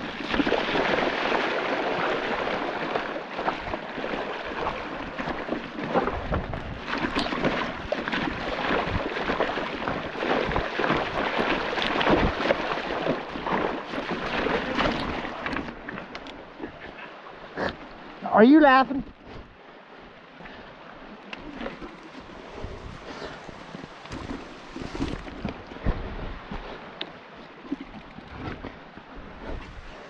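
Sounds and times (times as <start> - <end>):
wind noise on microphone: 5.9 - 13.8, 22.4 - 26.8, 27.8 - 30.0.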